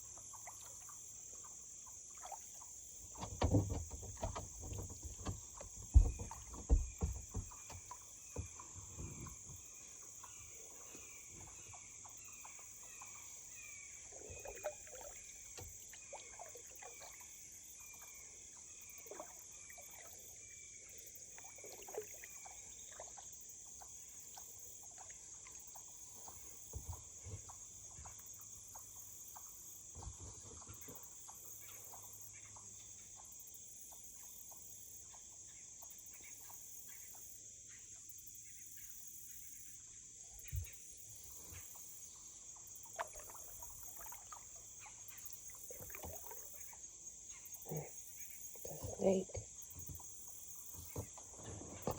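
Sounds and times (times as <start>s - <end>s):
paddle knocking against kayak: 3.0s - 9.8s, 26.3s - 28.9s, 29.8s - 32.0s, 45.4s - 46.7s, 48.6s - 51.9s.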